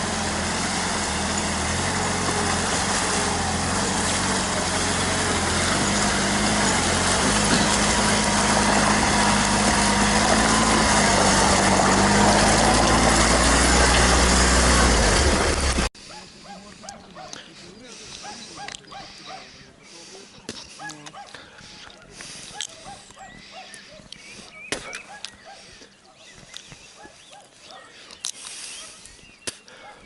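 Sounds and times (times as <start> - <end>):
vehicle engine running: 0.0 - 23.8.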